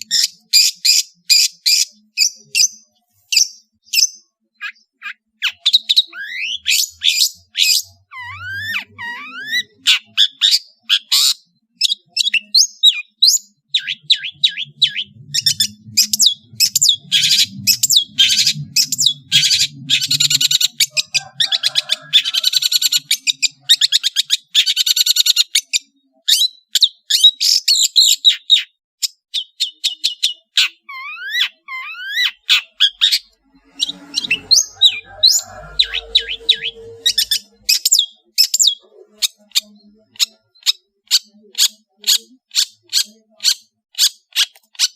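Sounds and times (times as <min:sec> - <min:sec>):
shrike singing: 0:12.0 - 0:24.6, 0:31.8 - 0:40.4.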